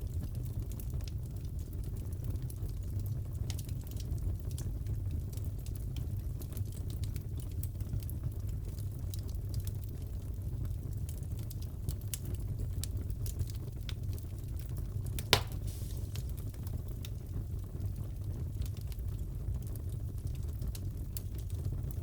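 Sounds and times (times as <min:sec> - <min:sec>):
wood fire crackling: 0:00.0 - 0:22.0
loud fire pop: 0:15.2 - 0:16.6.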